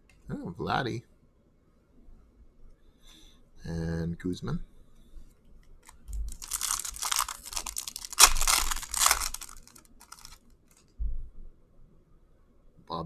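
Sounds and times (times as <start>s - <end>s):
foil wrapper crinkling: 5.8s - 10.8s.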